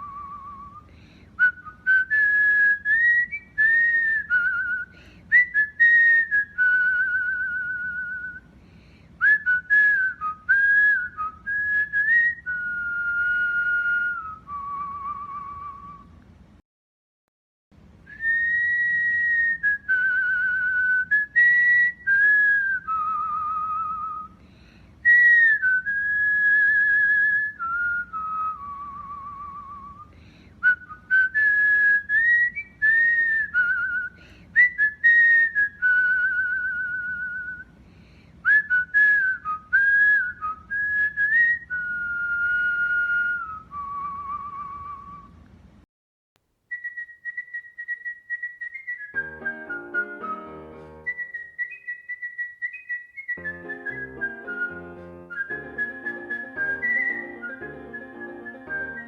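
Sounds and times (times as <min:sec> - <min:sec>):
cockatiel whistling song: 0:46.7 - 0:59.0.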